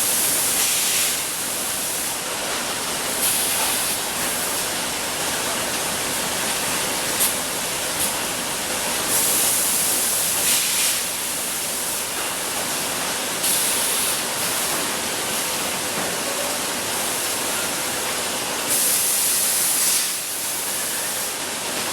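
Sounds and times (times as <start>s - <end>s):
production line machinery: 0.0s - 21.9s
loud hiss: 9.1s - 12.0s.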